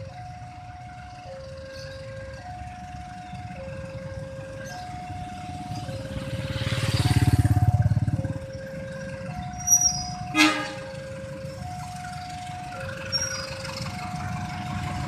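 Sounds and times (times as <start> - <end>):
two-tone level crossing alarm: 0.0 - 15.0
vehicle engine passing: 4.9 - 10.0, 11.6 - 15.0.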